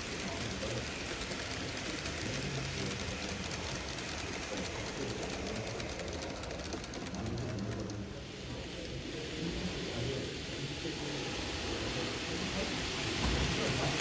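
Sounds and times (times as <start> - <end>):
wheels clicking over track: 0.0 - 8.2.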